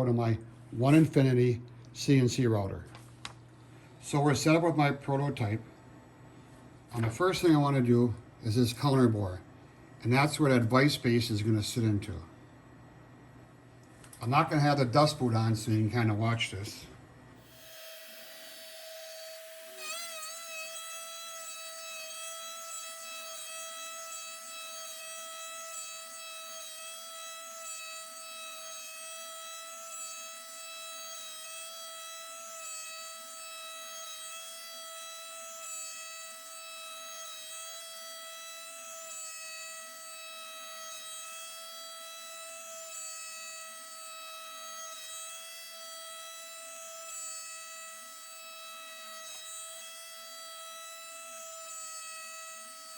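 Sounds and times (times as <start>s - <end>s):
router spindle high whine: 17.4s - 52.9s.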